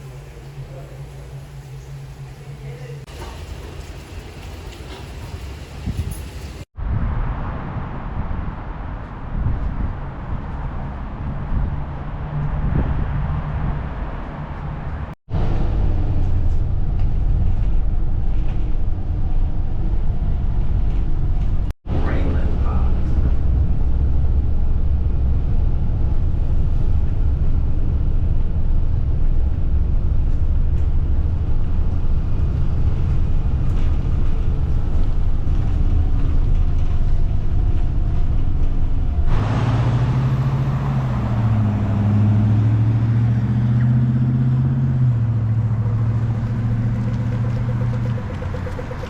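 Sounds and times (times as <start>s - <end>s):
vehicle engine rumble: 0.0s - 49.0s
engine hum changing pitch: 36.2s - 49.0s.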